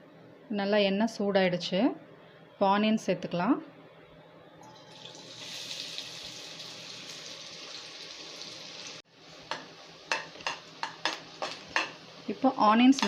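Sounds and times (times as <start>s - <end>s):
onions sizzling in hot oil: 5.0s - 13.0s.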